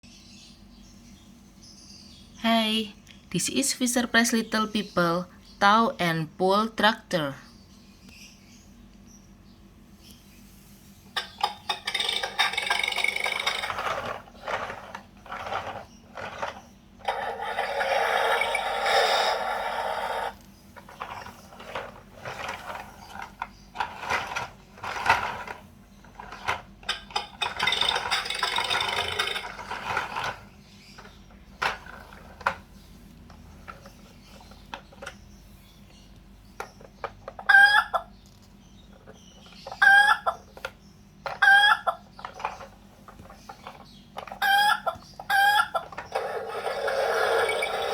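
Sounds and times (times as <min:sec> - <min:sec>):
toy clicks and rattles: 0:11.2 - 0:30.4, 0:42.2 - 0:44.8, 0:45.6 - 0:47.9
recorded hen clucking: 0:37.3 - 0:38.1, 0:39.7 - 0:40.5, 0:41.3 - 0:42.2, 0:44.2 - 0:46.6.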